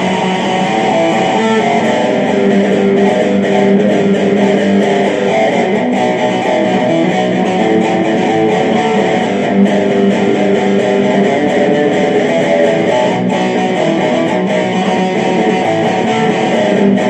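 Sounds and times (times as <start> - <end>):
electric guitar rock riff: 0.0 - 17.0.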